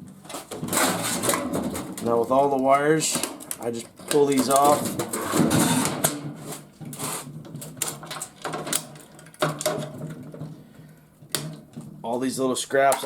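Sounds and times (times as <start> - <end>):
wire connectors clicking off: 1.3 - 5.2, 11.2 - 13.0.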